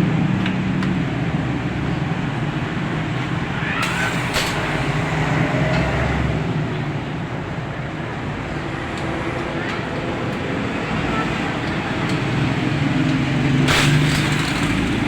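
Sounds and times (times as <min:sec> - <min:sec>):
sharp clicks: 0:03.8 - 0:04.9
vehicle engine hum: 0:10.2 - 0:15.0.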